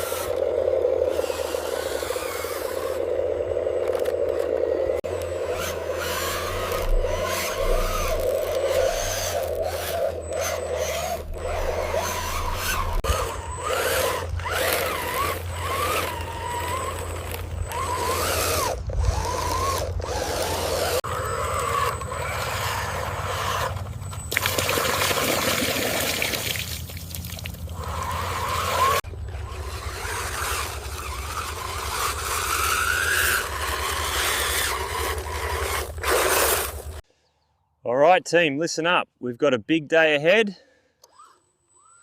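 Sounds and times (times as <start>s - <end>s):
electric motors whining: 0.0s - 37.0s, 41.0s - 42.0s
steady low hum: 0.0s - 37.1s
scraping: 3.8s - 24.2s.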